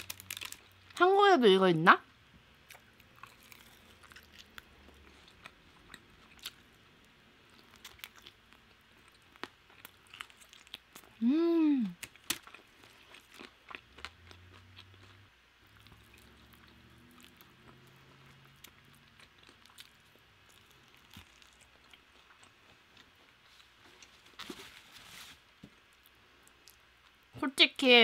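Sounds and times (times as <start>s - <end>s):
crispy chicken crunching: 0.0s - 1.0s, 2.7s - 6.7s, 7.5s - 11.2s, 12.0s - 24.5s.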